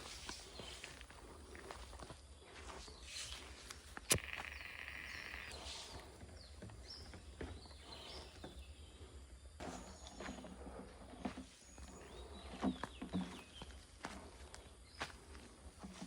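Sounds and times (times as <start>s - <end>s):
birds chirping: 0.1s - 9.2s.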